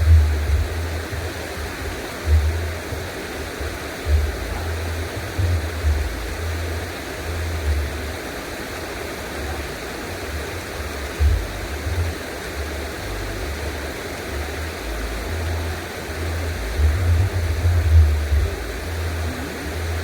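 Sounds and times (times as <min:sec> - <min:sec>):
low rumble: 0:00.0 - 0:02.8, 0:14.4 - 0:20.0
rushing water: 0:00.0 - 0:20.0.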